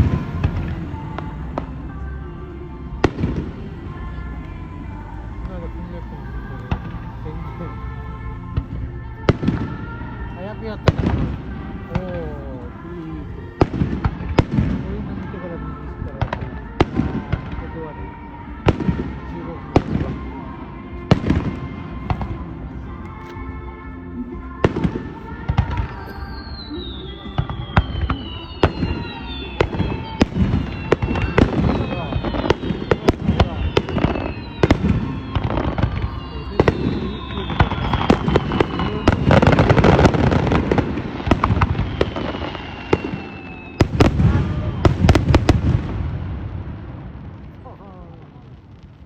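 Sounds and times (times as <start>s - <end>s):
background music: 0.0s - 49.0s
fireworks crackling and banging: 0.0s - 49.0s
firework shells booming: 24.6s - 47.8s.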